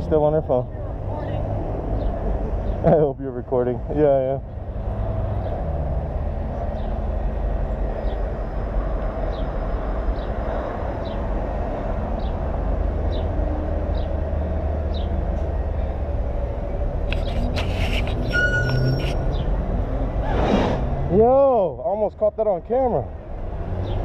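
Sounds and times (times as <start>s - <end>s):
wind and road noise: 0.0s - 24.0s
faint short high chirp: 18.2s - 19.5s.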